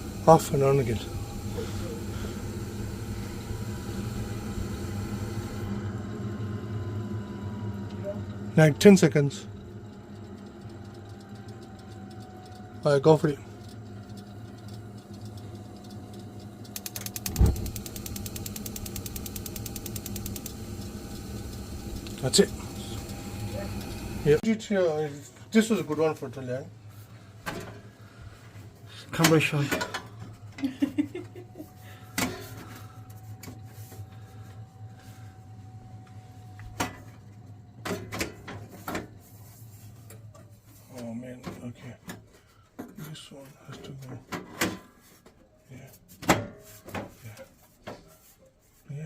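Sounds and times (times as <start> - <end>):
boiler ignition clicking: 0.0 - 24.4
faint steady whine: 0.0 - 44.1
sharp clicks and knocks: 14.1 - 20.6
gas burner lighting thump: 16.8 - 22.4.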